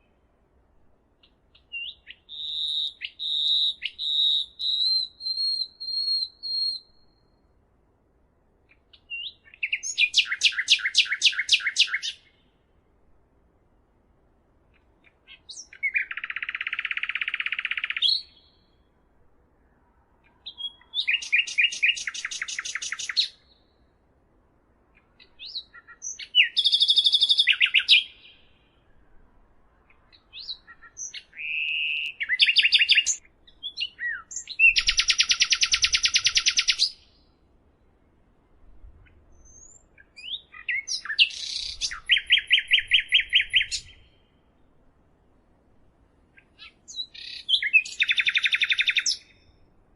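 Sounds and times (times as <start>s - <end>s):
songbird trilling: 1.6s - 7.2s, 8.7s - 12.4s, 15.3s - 18.6s, 20.4s - 23.6s, 25.2s - 28.6s, 30.1s - 37.2s, 39.4s - 44.3s, 46.4s - 49.5s.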